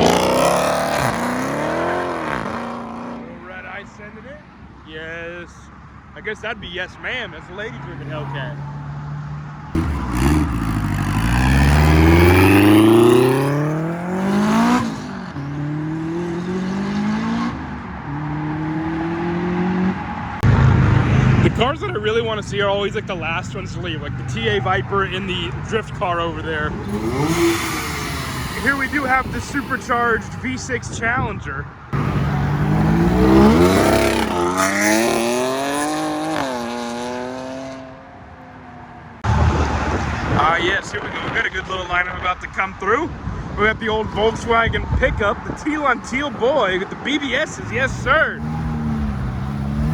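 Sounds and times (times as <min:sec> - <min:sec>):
car engine accelerating: 0:00.0 - 0:03.4, 0:07.8 - 0:30.9, 0:31.9 - 0:38.0, 0:46.9 - 0:49.9
supercharger whine: 0:26.6 - 0:31.0.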